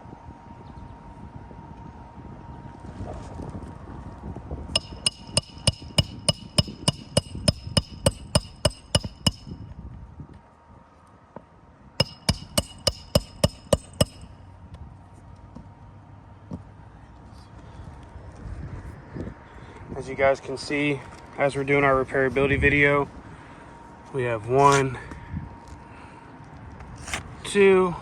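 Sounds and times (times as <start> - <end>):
hammer blows on metal: 4.8 - 9.7, 12.0 - 14.4.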